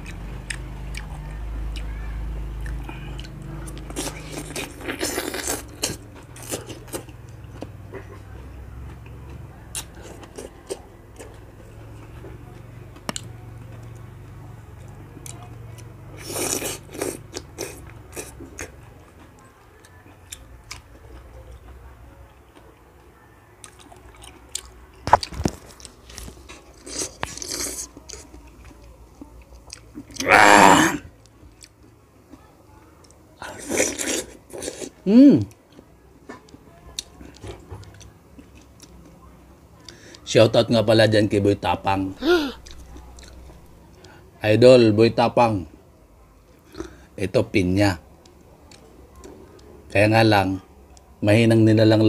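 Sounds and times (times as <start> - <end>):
person chewing fruit wetly: 0.0 - 1.9, 2.5 - 8.3, 8.9 - 21.8, 23.6 - 30.5, 31.5 - 32.0, 33.0 - 39.2, 42.6 - 43.8.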